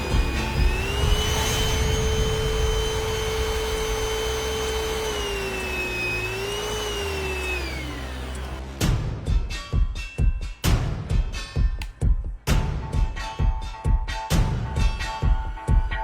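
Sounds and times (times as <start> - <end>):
vacuum cleaner motor whine: 0.0 - 8.8.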